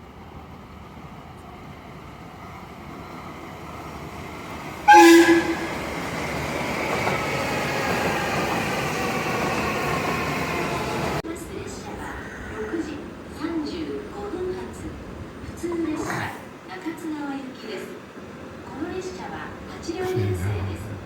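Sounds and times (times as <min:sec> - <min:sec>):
train running by: 0:00.0 - 0:15.6
electric train horn: 0:04.8 - 0:06.0.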